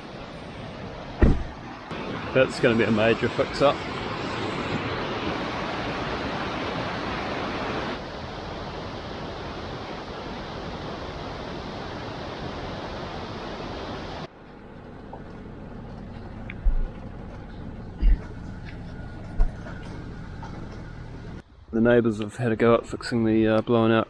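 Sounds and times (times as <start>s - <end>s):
rushing floodwater: 0.0s - 14.3s.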